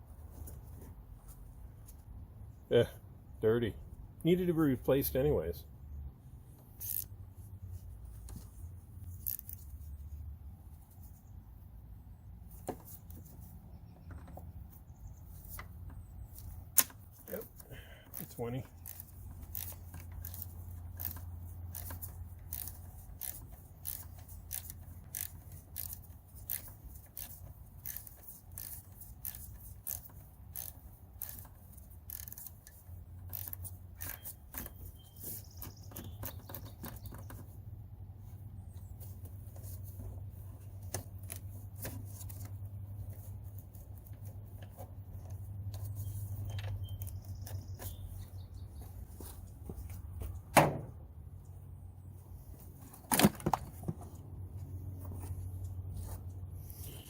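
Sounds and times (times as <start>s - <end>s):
hand tools clicking and scraping: 6.6s - 7.2s, 7.9s - 9.9s, 14.1s - 37.6s, 38.7s - 50.0s.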